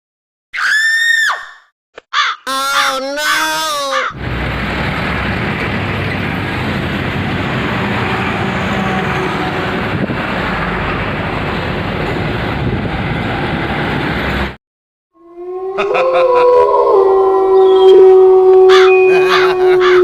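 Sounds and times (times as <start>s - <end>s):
loud rushing engine: 4.2s - 14.6s.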